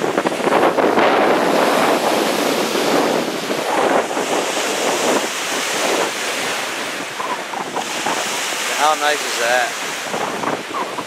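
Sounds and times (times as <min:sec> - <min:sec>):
waves washing against shore: 0:00.0 - 0:11.0
wind on microphone: 0:00.0 - 0:11.0.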